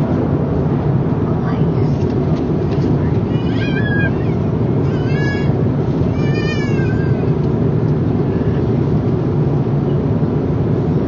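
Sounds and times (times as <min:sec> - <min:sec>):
airliner cabin drone: 0:00.0 - 0:11.0
high meow-like cries: 0:03.3 - 0:07.3.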